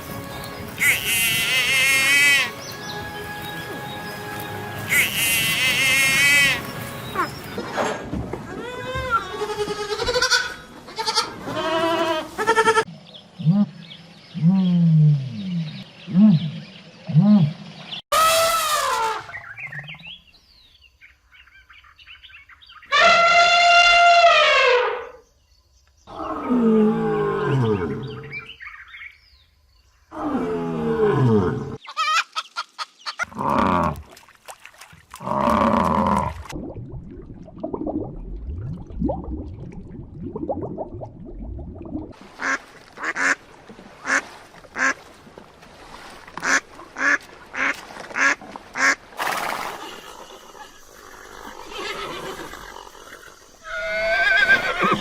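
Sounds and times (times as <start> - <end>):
drawn-out falling animal calls: 0.7 - 12.9, 49.6 - 55.0.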